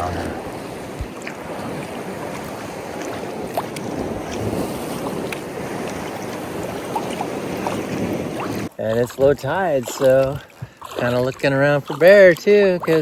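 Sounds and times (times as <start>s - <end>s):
wind on microphone: 0.0s - 8.7s
water splashing around kayak paddle: 0.0s - 13.0s.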